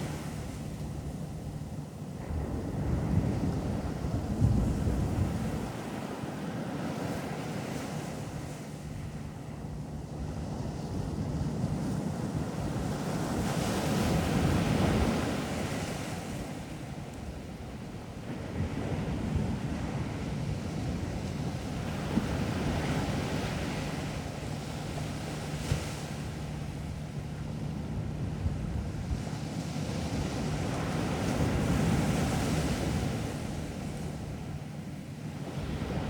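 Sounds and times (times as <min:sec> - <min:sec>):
steady low hum: 0:00.0 - 0:05.7, 0:08.1 - 0:15.4, 0:16.3 - 0:36.0
wind buffeting microphone: 0:00.0 - 0:06.1.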